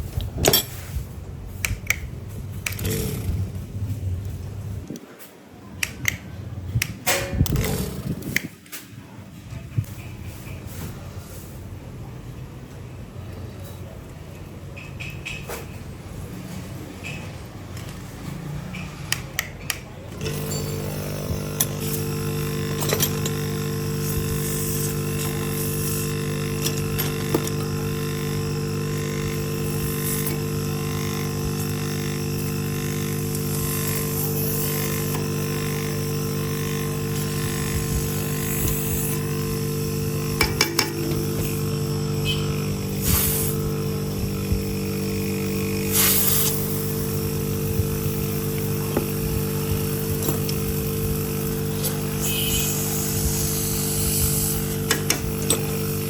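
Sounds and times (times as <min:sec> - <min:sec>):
electric motor humming: 0:01.3 - 0:05.0, 0:20.1 - 0:56.0
sharp clicks: 0:05.8 - 0:06.2.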